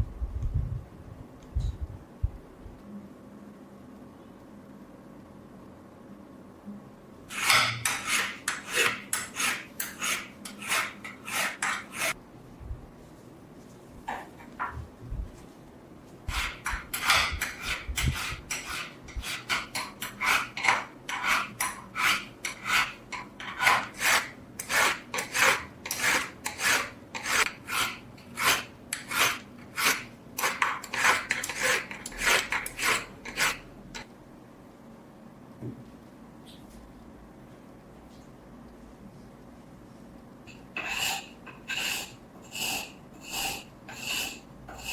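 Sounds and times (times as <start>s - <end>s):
abrasive rasping on steel blade: 7.3s - 12.2s, 16.3s - 33.6s, 40.5s - 44.9s.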